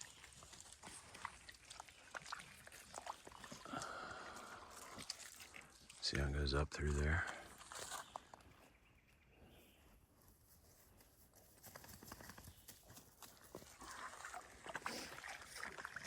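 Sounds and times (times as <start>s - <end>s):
footsteps on woodland trail: 7.4s - 14.0s.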